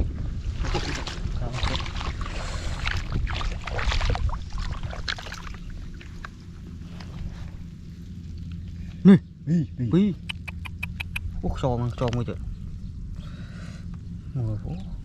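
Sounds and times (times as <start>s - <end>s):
shallow water splashing: 0.4s - 8.5s.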